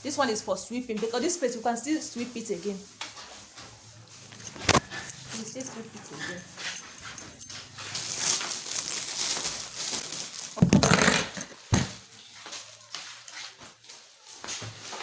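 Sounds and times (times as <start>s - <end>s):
household things rustling and knocking: 3.0s - 12.6s
loud clatter: 10.6s - 12.0s.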